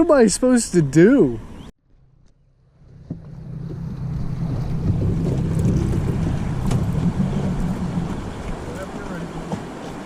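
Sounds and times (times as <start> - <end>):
boat motor running: 1.0 - 10.0
wind buffeting microphone: 2.8 - 10.0.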